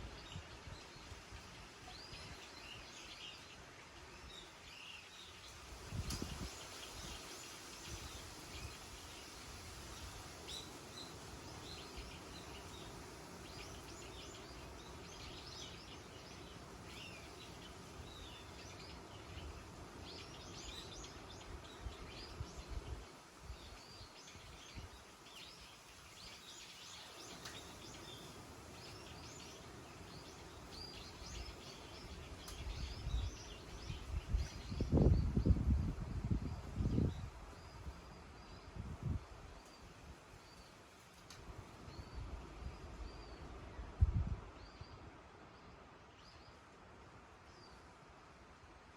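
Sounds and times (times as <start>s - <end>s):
small birds chirping: 0.0s - 44.0s
outdoor background hiss: 0.0s - 48.9s
wind rumble on microphone: 5.5s - 15.7s, 30.1s - 40.3s, 41.5s - 45.1s.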